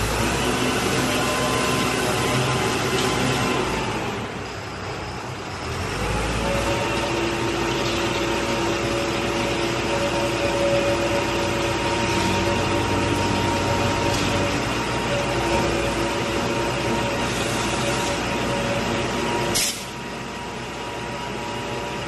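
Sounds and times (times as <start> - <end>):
concrete mixer engine running: 0.0 - 22.0.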